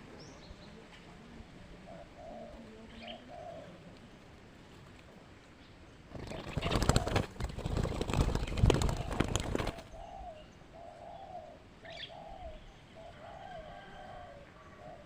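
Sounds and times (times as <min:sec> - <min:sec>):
dove cooing: 0:01.1 - 0:03.9, 0:06.1 - 0:15.0
wings flapping and scuffling: 0:06.1 - 0:09.9.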